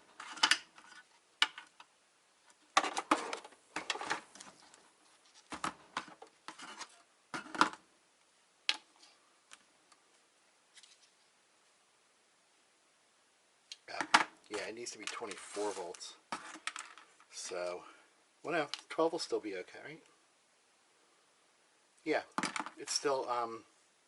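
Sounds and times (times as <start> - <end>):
plastic and metal parts clattering: 0.1 - 1.9, 2.7 - 7.8, 15.0 - 17.3, 22.4 - 22.8.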